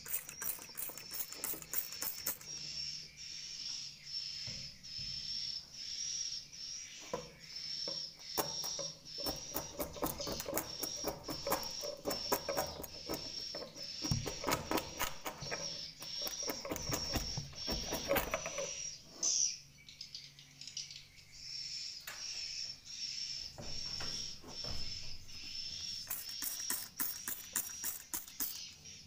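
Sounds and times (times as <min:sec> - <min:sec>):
rapid clicking: 0:00.0 - 0:02.5, 0:08.4 - 0:18.7, 0:26.0 - 0:28.7
swiftlets chirping: 0:00.0 - 0:03.1, 0:07.9 - 0:19.0, 0:24.5 - 0:29.0
scraping and rustling: 0:08.4 - 0:19.4.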